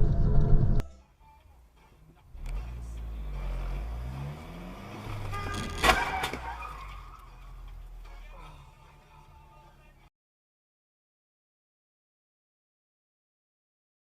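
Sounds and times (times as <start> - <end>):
car engine revving: 2.1 - 9.0.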